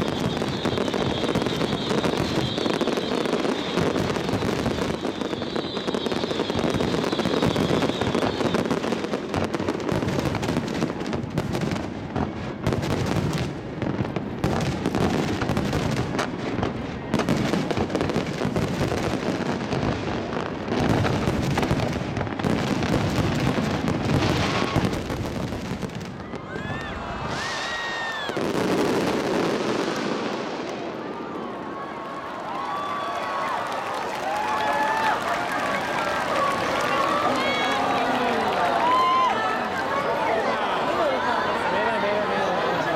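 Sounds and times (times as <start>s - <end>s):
high firework whistle: 0.0s - 9.2s, 26.4s - 28.6s
fireworks bursts and crackles: 0.0s - 42.9s.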